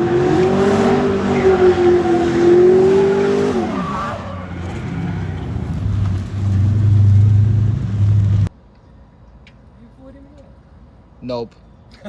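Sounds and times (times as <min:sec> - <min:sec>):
car engine revving: 0:00.0 - 0:08.5.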